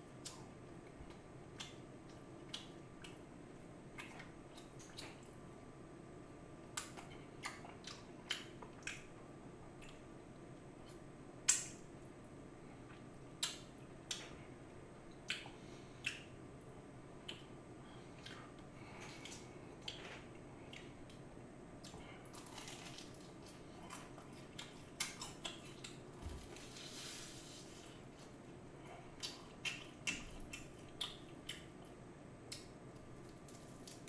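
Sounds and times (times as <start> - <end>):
person crunching fried chicken: 22.2 - 26.6.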